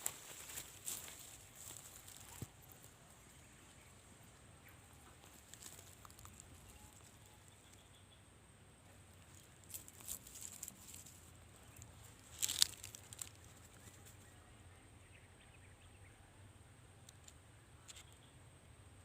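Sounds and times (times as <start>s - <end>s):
faint crackling rustles: 0.0s - 7.9s, 8.8s - 14.3s
faint high whine: 0.0s - 12.3s.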